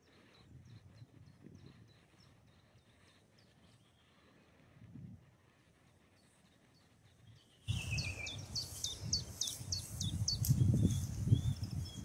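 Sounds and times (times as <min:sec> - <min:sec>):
wind on microphone: 0:00.3 - 0:02.6, 0:04.7 - 0:05.4, 0:07.7 - 0:12.0.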